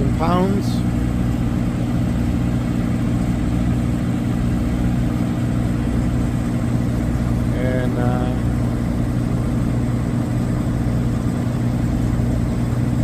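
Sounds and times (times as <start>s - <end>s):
heavy machinery droning: 0.0s - 13.0s.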